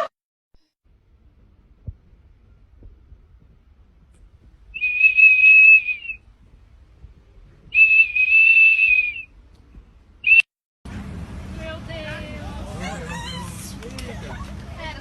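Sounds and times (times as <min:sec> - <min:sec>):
long high-pitched whistles: 0:04.8 - 0:06.2, 0:07.7 - 0:09.3.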